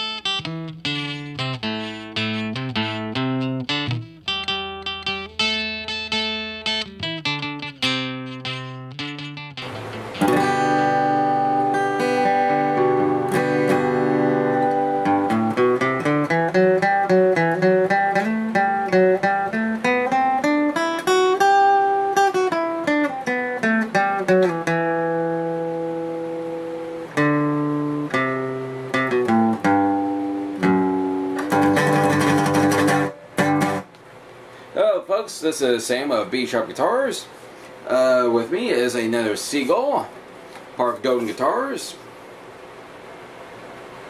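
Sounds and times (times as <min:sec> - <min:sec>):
acoustic guitar fingerpicking: 0:00.0 - 0:34.1.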